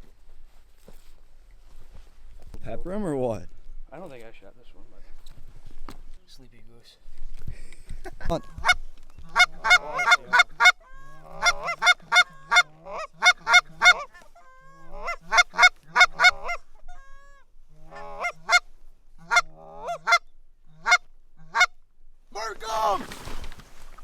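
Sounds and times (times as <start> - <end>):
goose calls honking: 8.5 - 21.7.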